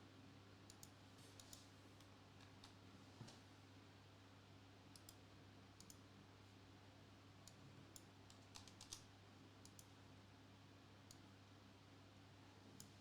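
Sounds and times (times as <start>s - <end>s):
keyboard and mouse clicks: 5.8s - 6.0s, 7.5s - 9.0s, 9.6s - 9.9s.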